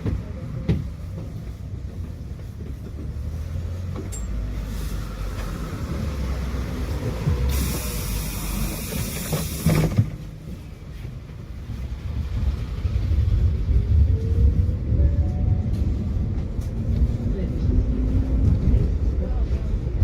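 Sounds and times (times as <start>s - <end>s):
tram rumbling: 0.0s - 20.0s
loud air hiss: 7.4s - 10.0s.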